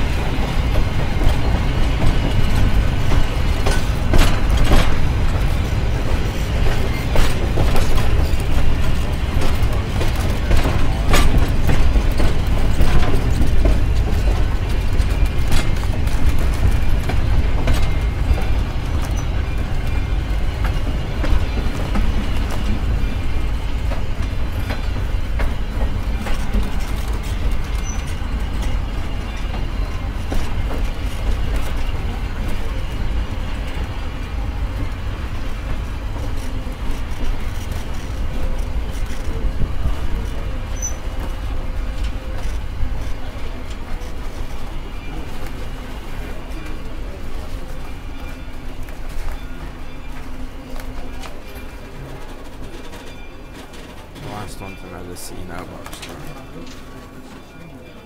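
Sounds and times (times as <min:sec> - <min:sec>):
clanks and knocks from cars: 0:00.0 - 0:33.0
train wheels rumbling on rails: 0:00.0 - 0:58.0.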